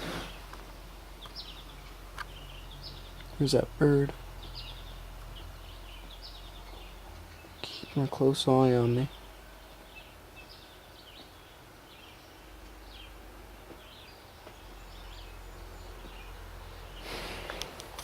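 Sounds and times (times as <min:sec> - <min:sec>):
low background rumble: 0:00.0 - 0:18.0
small birds chirping: 0:00.0 - 0:18.0.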